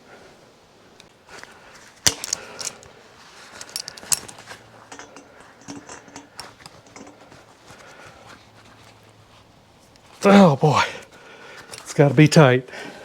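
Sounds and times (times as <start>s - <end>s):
hand tools clinking on metal: 2.0s - 2.9s, 3.5s - 7.5s.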